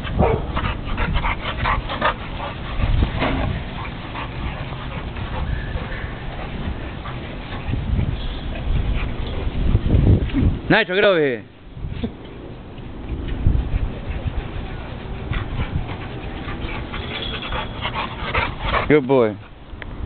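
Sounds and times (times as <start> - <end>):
puppies yipping and whimpering: 16.3 - 18.2.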